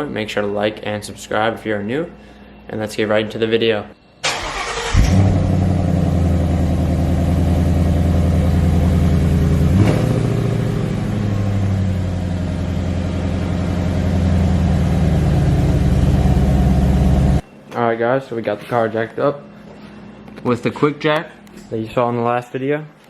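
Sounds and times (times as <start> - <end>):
car engine starting and idling: 4.2 - 17.4.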